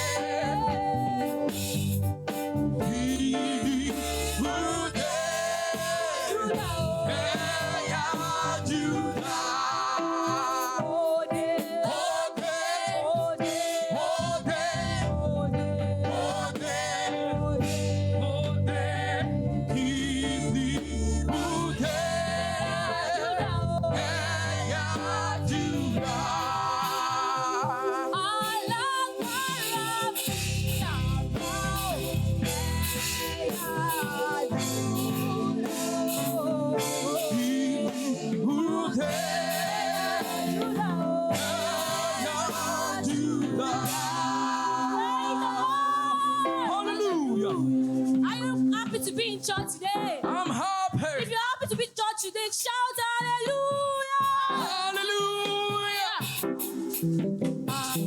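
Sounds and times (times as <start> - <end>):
instrumental accompaniment: 0.0 - 50.6, 56.2 - 58.0
choir singing gospel: 0.0 - 51.2, 54.0 - 58.0
low bass part: 30.3 - 33.5.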